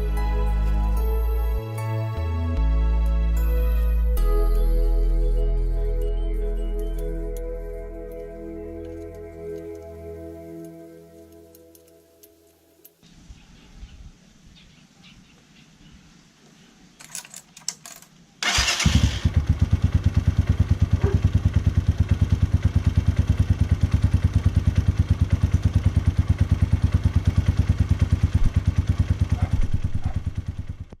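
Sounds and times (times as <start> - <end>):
motorcycle starter clicks: 17.0 - 19.4
motorcycle engine running: 18.4 - 31.0.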